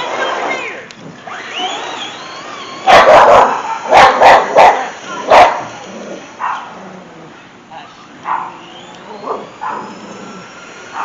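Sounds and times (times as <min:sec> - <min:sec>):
dog barking: 0:02.9 - 0:05.6, 0:06.4 - 0:06.7, 0:08.2 - 0:08.6, 0:09.2 - 0:10.0.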